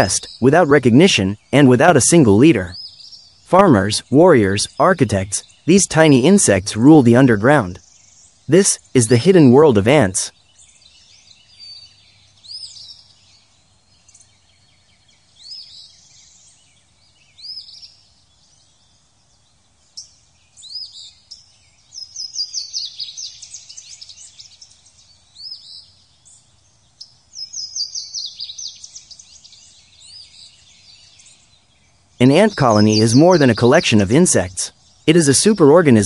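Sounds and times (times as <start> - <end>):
rising bird chirps: 0.0 - 13.4, 26.9 - 36.0.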